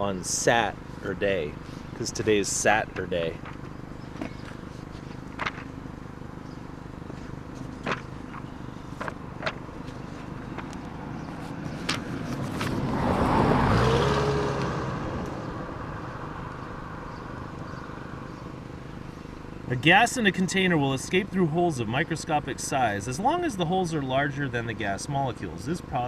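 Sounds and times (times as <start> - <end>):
car driving past: 10.9 - 18.4.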